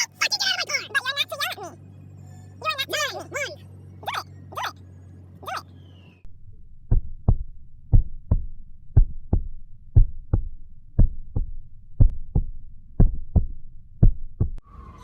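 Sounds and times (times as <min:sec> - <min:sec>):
heartbeat thumping: 0:06.8 - 0:14.6.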